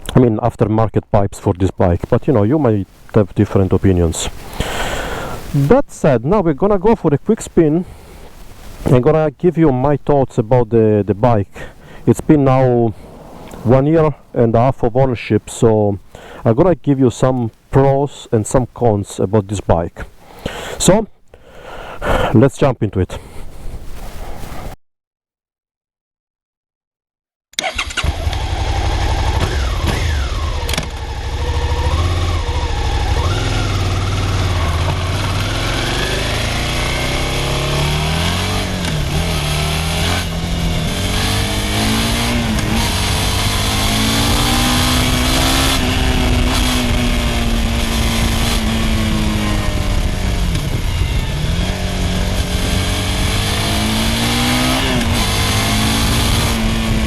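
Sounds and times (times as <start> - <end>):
motorcycle engine revving: 27.6 - 57.0.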